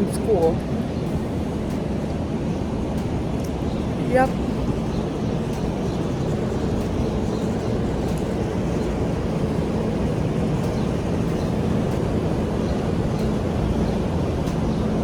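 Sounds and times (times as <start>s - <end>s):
low outdoor rumble: 0.0s - 15.0s
faint ticks: 6.7s - 9.0s, 13.2s - 14.7s.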